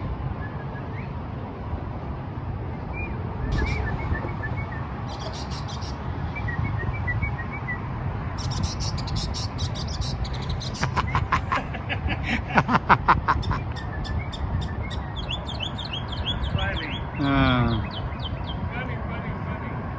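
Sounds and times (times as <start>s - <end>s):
mockingbird singing: 3.5s - 4.4s, 5.1s - 6.0s, 8.4s - 11.6s, 13.2s - 18.7s.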